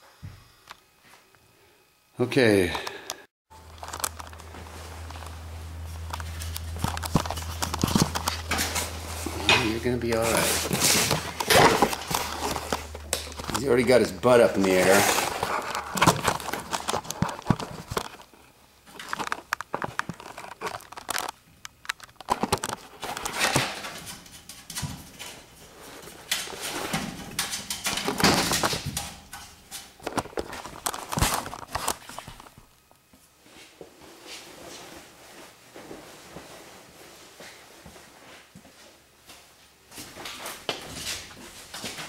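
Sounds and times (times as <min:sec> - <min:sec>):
rustling scraping and knocking: 0:03.6 - 0:21.4.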